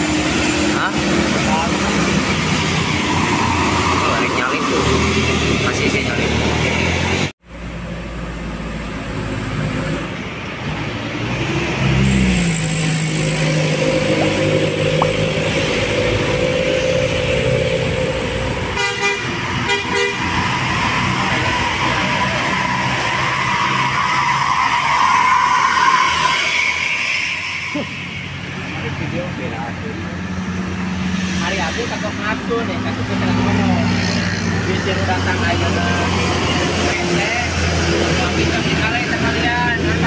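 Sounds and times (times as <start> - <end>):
heavy vehicle engines under load: 0.0 - 25.7
horn short rapid pulses: 13.4 - 20.9.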